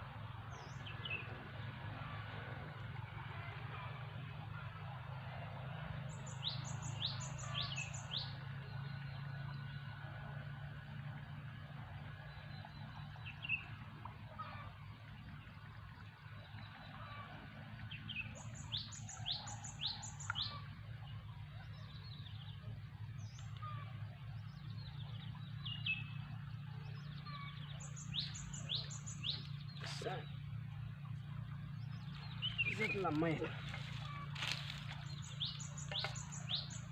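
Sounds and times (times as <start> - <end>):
steady low hum: 0.0 - 36.9
wild birds chirping: 0.0 - 36.9.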